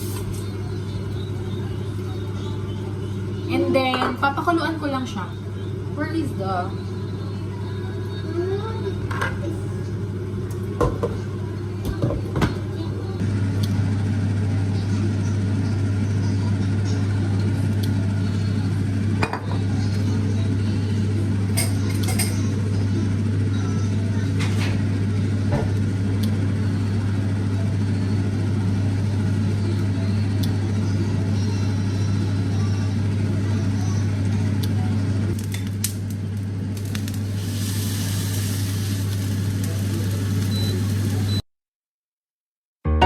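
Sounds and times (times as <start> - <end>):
low machine hum: 0.0 - 41.4
dishes and utensils clinking: 21.5 - 22.5.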